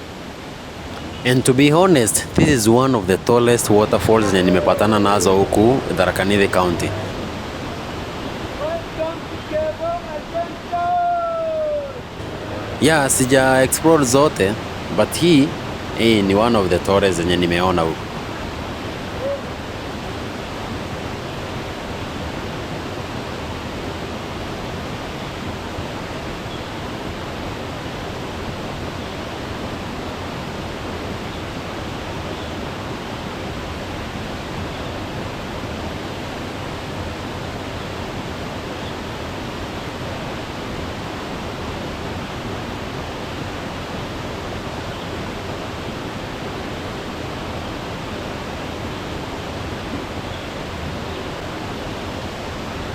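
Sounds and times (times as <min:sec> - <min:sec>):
waterfall rushing: 0:00.0 - 0:23.8.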